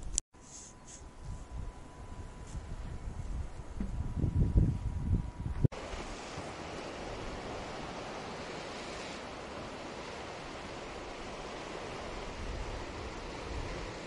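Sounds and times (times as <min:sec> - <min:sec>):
sea waves on the shore: 0:05.7 - 0:14.0.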